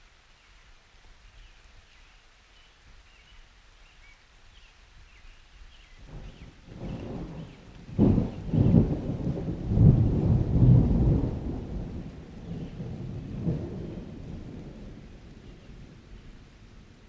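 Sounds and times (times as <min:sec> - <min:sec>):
rain falling: 0:00.0 - 0:17.0
thunderclap and rumble: 0:06.1 - 0:17.0.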